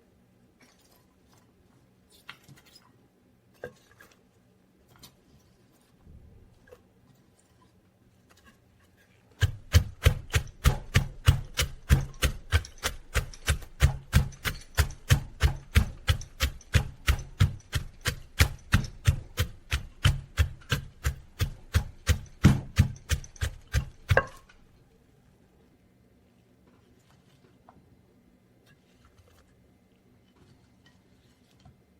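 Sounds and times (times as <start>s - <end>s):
pestle pounding in a mortar: 9.4s - 24.6s.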